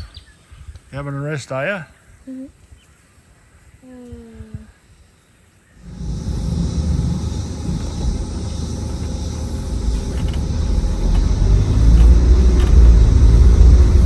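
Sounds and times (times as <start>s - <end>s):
van driving on gravel: 5.8s - 14.0s.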